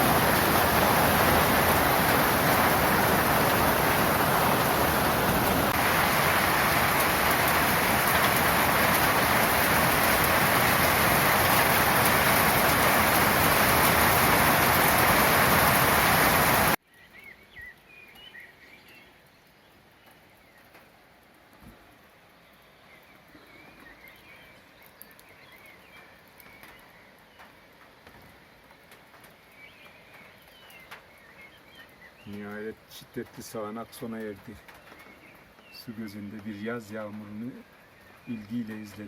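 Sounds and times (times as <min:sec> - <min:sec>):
heavy rain pouring: 0:00.0 - 0:16.8
faint bird chirps: 0:22.4 - 0:27.5.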